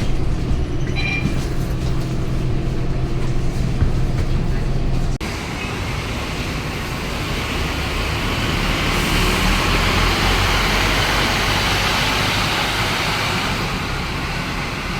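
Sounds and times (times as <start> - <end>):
diesel bus engine rumble: 0.0 - 14.9
road noise hiss: 5.2 - 14.9.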